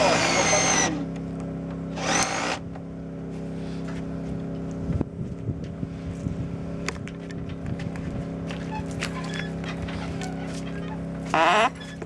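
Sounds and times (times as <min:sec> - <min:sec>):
power drill running: 0:00.0 - 0:01.2, 0:01.8 - 0:02.8
steady motor hum: 0:00.0 - 0:12.0.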